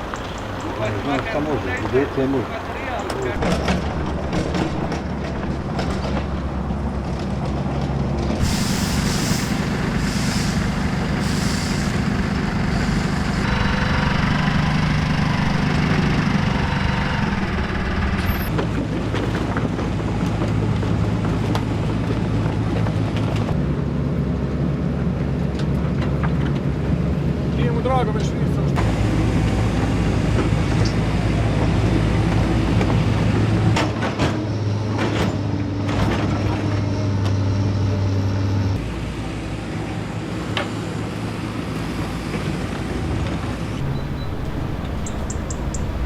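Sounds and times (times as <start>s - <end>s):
heavy vehicle engines running: 0.0s - 46.0s
short hisses: 8.4s - 13.4s.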